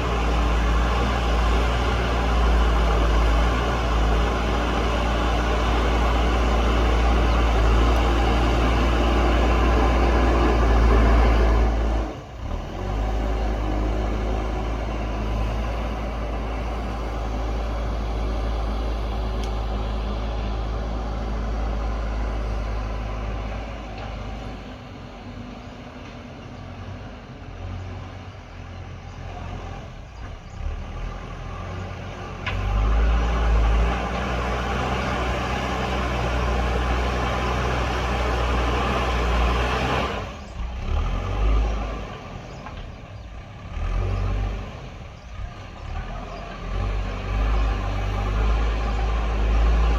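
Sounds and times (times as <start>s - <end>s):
diesel engine running hard: 0.0s - 49.9s.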